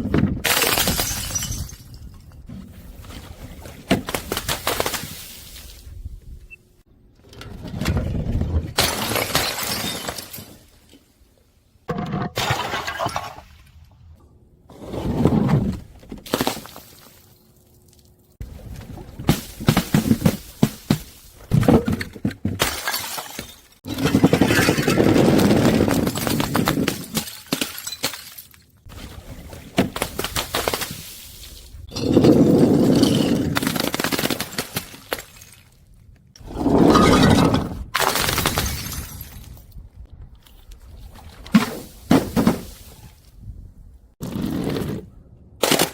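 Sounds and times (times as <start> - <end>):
glass bottles breaking: 0.4 - 2.1, 8.8 - 10.6, 12.4 - 13.4, 22.6 - 28.6, 38.0 - 39.6
crunching and grinding glass: 21.5 - 28.8, 31.8 - 35.8.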